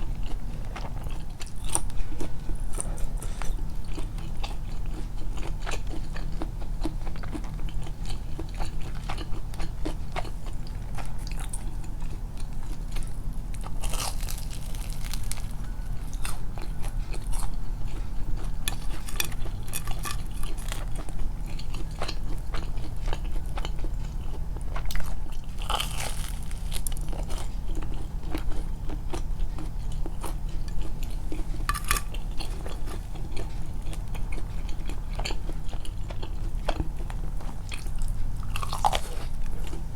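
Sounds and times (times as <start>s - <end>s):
steady low hum: 0.0s - 39.9s
wet chewing with crunches: 0.0s - 39.9s.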